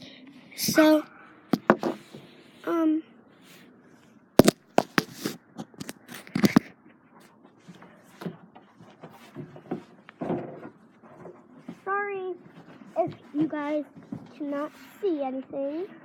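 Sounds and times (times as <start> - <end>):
phone handling knocks and scrapes: 1.6 - 2.3, 4.4 - 6.7.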